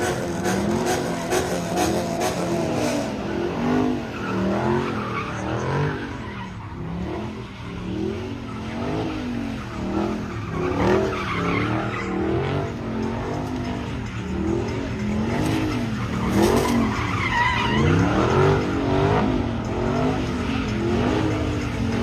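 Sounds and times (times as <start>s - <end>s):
car engine revving: 0.0s - 22.0s
tyres skidding: 0.0s - 22.0s.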